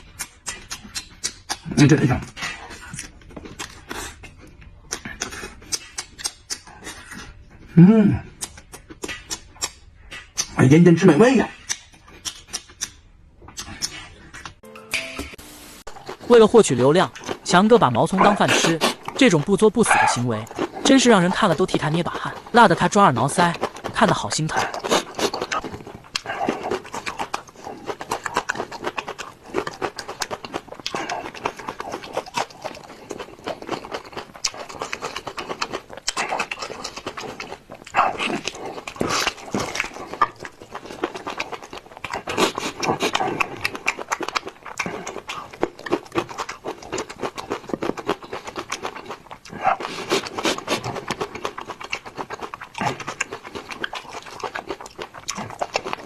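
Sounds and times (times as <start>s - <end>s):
man chewing raw onions: 0.0s - 14.7s, 15.9s - 56.0s.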